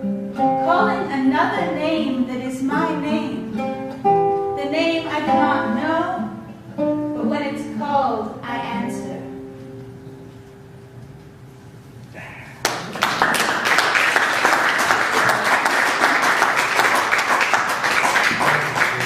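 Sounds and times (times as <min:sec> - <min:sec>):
guitar notes ringing: 0:00.0 - 0:10.8
audience applause: 0:12.6 - 0:19.0.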